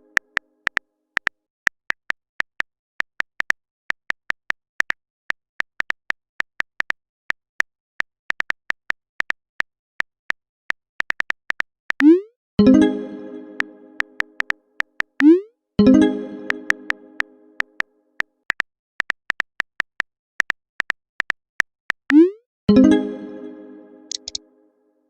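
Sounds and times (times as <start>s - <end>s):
phone keyboard typing clicks: 24.1s - 24.4s.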